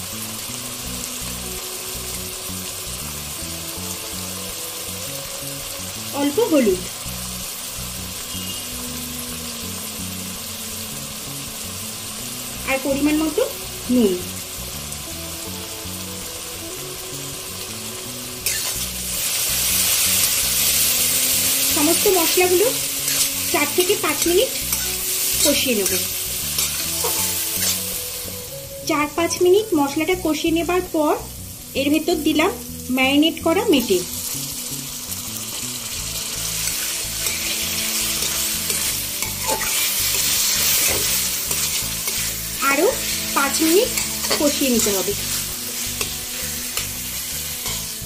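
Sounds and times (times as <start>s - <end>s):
onions sizzling in hot oil: 0.0s - 48.0s
soft background music: 0.0s - 48.0s
metal spatula stirring: 18.4s - 20.9s, 21.5s - 28.0s, 36.2s - 48.0s.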